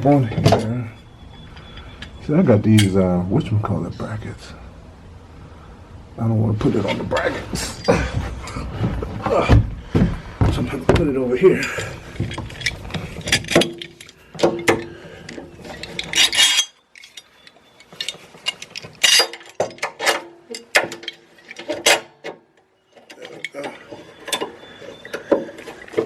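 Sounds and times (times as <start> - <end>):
metal clinks and scrapes: 0.1 - 3.0, 6.6 - 8.6, 11.6 - 22.2, 22.8 - 26.0.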